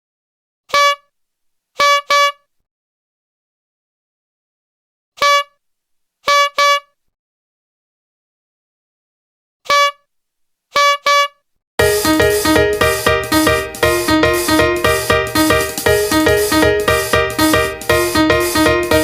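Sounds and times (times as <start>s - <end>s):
horn beeping: 11.8s - 19.0s.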